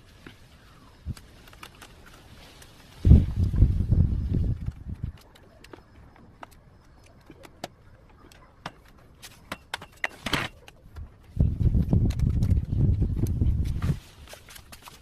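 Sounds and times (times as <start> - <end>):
wire and pliers clicking: 1.0 - 2.8.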